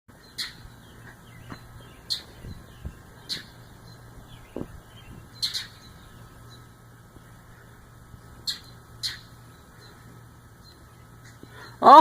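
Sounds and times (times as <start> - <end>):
mockingbird harsh scolding calls: 0.3 - 3.7, 4.3 - 6.6, 8.4 - 10.0
soft low thumps: 1.0 - 5.3.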